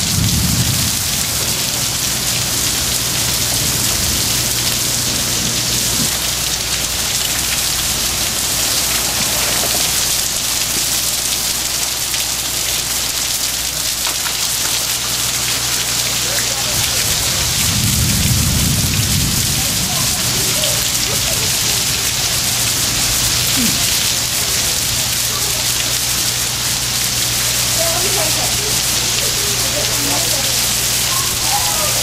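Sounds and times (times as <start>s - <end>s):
low rumble: 0.0s - 10.4s, 16.7s - 25.4s
heavy rain pouring: 0.0s - 32.0s.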